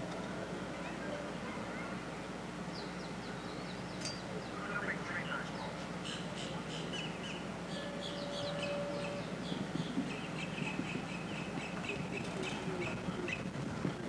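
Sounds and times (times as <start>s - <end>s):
steady low hum: 0.0s - 14.0s
birds chirping: 2.7s - 13.5s.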